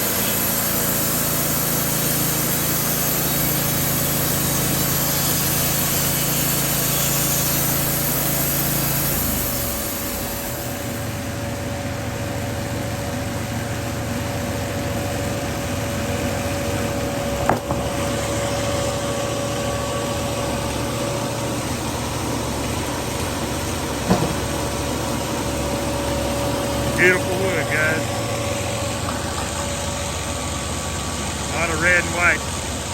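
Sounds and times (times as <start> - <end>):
saw cutting log hiss: 0.0 - 11.2, 25.0 - 29.5
band sawmill running: 0.0 - 32.9
sharp knocks: 17.4 - 18.0, 24.0 - 24.6.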